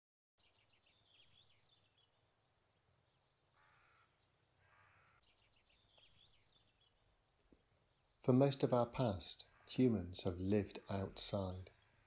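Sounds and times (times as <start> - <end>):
bird twittering song: 0.4 - 12.0
harsh bird calls: 3.5 - 12.0.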